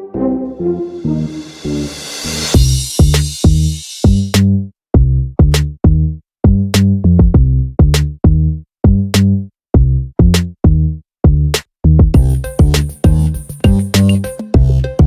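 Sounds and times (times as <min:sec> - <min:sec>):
electronic drum machine beat: 0:02.6 - 0:04.3, 0:12.1 - 0:15.0.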